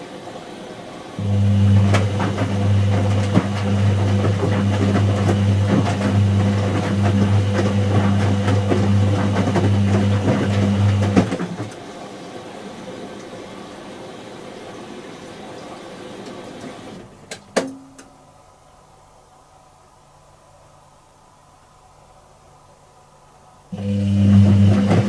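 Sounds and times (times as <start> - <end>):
washing machine motor hum: 1.2 - 11.9, 23.7 - 25.0.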